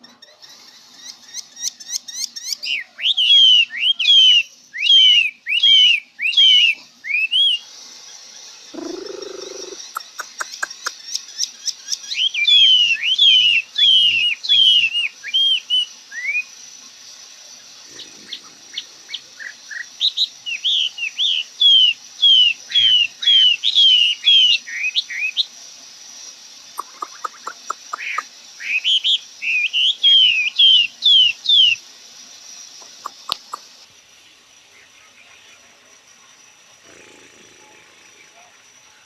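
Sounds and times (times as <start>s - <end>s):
songbird whistling: 0.0s - 7.7s, 8.7s - 16.6s, 19.1s - 25.6s, 26.8s - 31.8s, 32.6s - 33.8s
dry ticks: 8.7s - 12.0s, 26.2s - 28.4s, 32.2s - 34.0s.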